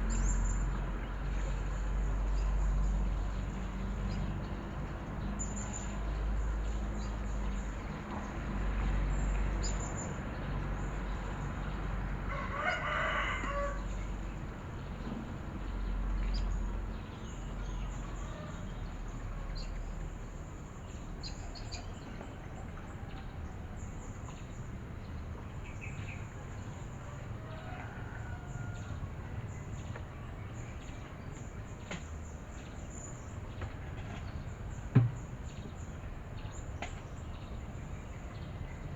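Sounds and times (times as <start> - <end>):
rooster crowing: 12.3 - 14.0, 27.4 - 29.2.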